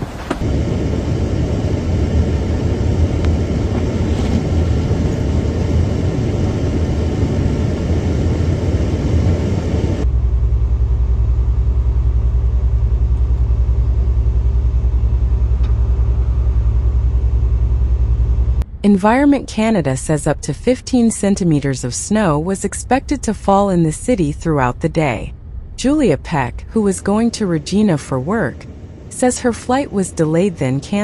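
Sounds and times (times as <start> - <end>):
low vehicle rumble: 0.0 - 31.0
pulsing hum: 0.0 - 31.0.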